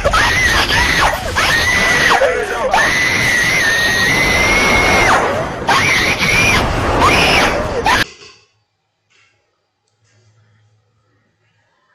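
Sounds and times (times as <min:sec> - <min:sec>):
shrill high-pitched scream: 0:00.0 - 0:08.1.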